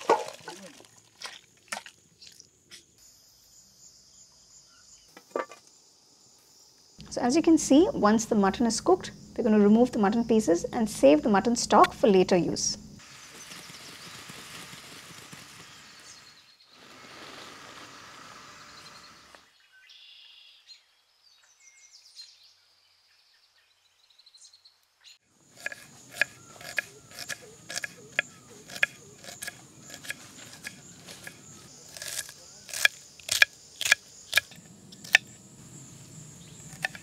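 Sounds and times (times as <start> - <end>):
steady outdoor hiss: 0.0 - 24.0, 24.8 - 37.0
faint bird chirps: 18.5 - 25.3.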